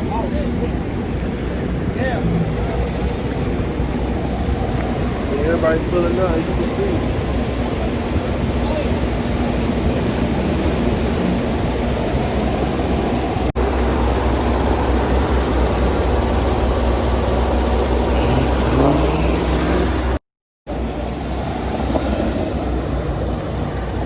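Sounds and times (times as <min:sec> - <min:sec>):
car engines rumbling: 0:00.0 - 0:24.0
engine revving: 0:01.9 - 0:04.7, 0:09.8 - 0:20.2.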